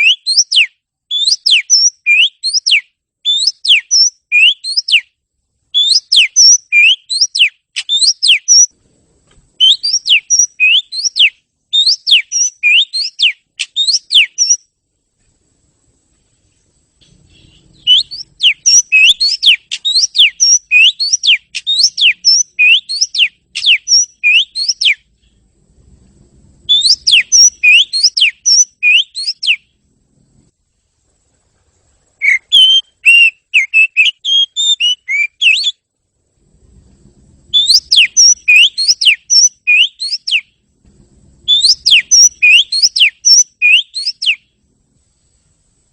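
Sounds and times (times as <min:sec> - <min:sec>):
bird singing whistled notes: 0:00.0 - 0:08.8, 0:09.6 - 0:14.7, 0:17.0 - 0:25.4, 0:26.6 - 0:29.8, 0:32.2 - 0:35.8, 0:37.5 - 0:40.6, 0:41.4 - 0:44.6.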